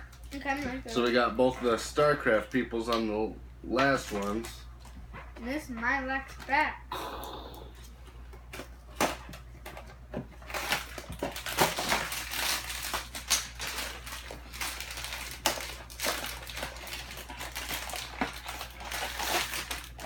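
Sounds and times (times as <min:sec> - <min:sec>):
plastic wrapper crinkling: 0:10.4 - 0:20.0.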